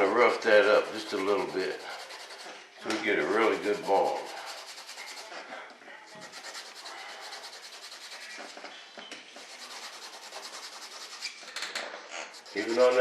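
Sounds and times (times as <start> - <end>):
sandpaper rubbing fiberglass: 0.3 - 2.5, 3.2 - 5.3, 6.1 - 8.6, 9.4 - 11.4, 12.1 - 13.0.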